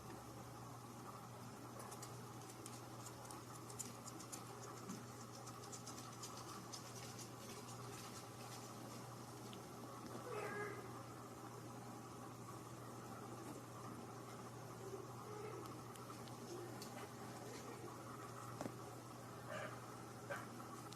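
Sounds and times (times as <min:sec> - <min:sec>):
steady low hum: 0:00.0 - 0:20.9
rapid light scratching and clicking: 0:01.7 - 0:10.2.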